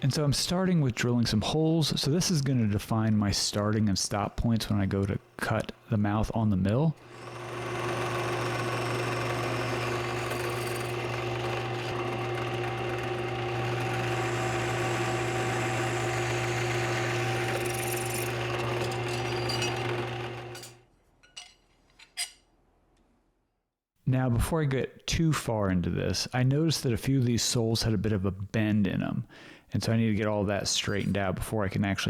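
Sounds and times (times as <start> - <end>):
drill boring into steel: 7.0 - 20.8.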